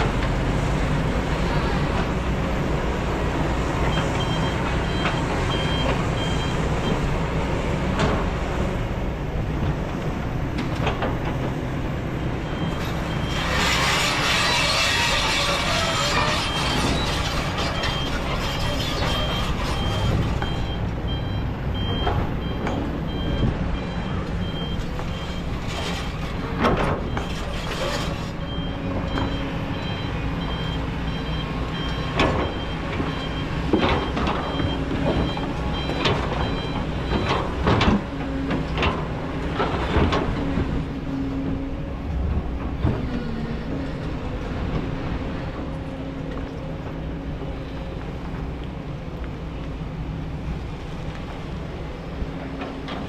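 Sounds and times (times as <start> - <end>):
excavator diesel engine running: 0.0 - 53.0
back-up alarm beeps: 16.5 - 25.6, 28.4 - 37.4.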